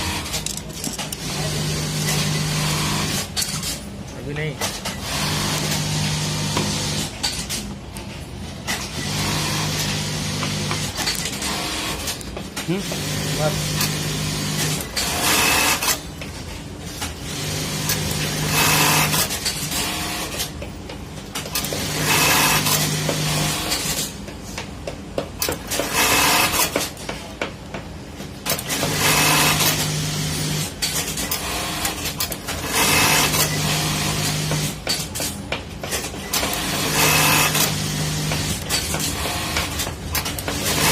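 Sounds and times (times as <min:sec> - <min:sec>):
sewing machine motor hum: 0:00.0 - 0:03.3, 0:05.0 - 0:07.1, 0:08.9 - 0:16.0, 0:17.2 - 0:20.4, 0:21.6 - 0:24.0, 0:31.3 - 0:34.8, 0:36.4 - 0:39.9
sewing machine stitching: 0:08.7 - 0:16.0, 0:17.1 - 0:20.5, 0:21.4 - 0:24.1, 0:25.4 - 0:27.0, 0:28.5 - 0:35.3, 0:35.9 - 0:40.9.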